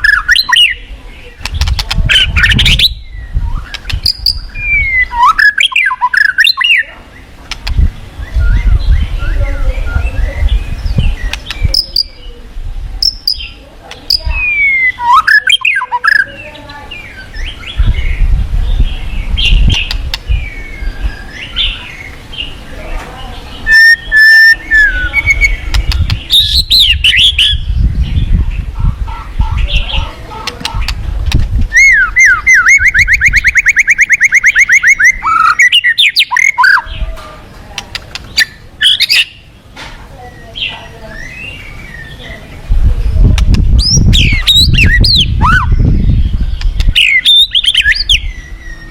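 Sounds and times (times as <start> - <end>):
songbird whistling song: 0.0 - 12.4, 13.0 - 22.6, 23.5 - 31.0, 31.7 - 37.1, 38.2 - 39.5, 40.2 - 42.4, 43.2 - 48.9
bird chips and clicks: 1.4 - 2.9, 3.6 - 6.8, 7.4 - 7.9, 11.1 - 12.2, 13.0 - 16.3, 19.5 - 20.5, 23.7 - 27.5, 30.3 - 36.9, 37.7 - 39.4, 46.6 - 48.2
bird whistled notes: 2.3 - 6.8, 14.3 - 16.3, 23.6 - 25.6, 31.7 - 36.9.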